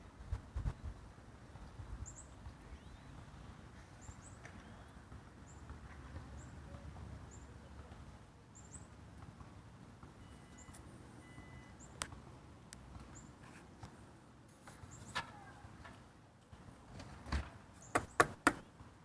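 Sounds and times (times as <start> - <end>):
small birds chirping: 0.6 - 9.3, 10.2 - 12.2, 12.8 - 13.9, 14.6 - 15.8, 17.7 - 18.8.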